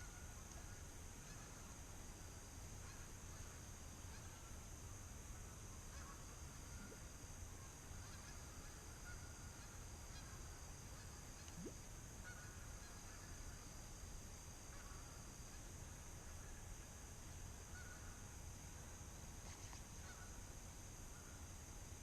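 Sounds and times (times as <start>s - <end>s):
background hiss: 0.0s - 22.0s.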